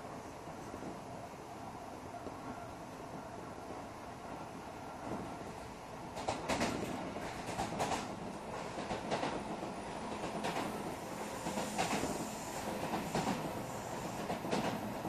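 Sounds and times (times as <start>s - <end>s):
train running noise: 0.0s - 15.0s
wheels clickety-clack on rail joints: 2.1s - 15.0s.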